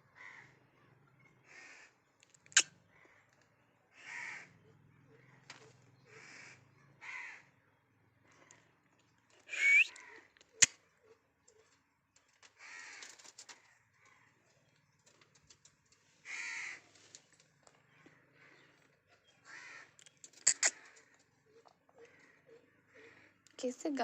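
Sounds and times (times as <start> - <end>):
parakeet calling: 9.5 - 10.7, 19.5 - 23.3.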